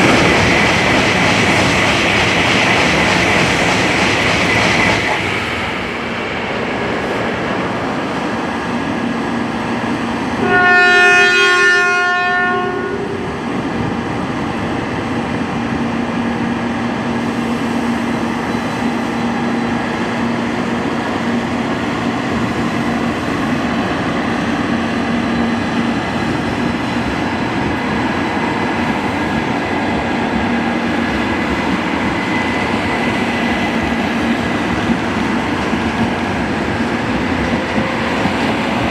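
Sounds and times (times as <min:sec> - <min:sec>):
train running noise: 0:00.0 - 0:38.9
train air horn blast: 0:10.4 - 0:13.2.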